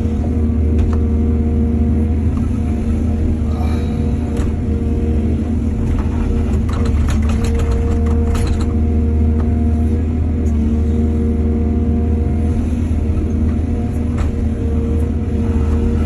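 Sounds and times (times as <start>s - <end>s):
excavator diesel engine running: 0.0s - 16.0s
rattling and clattering: 5.8s - 8.8s.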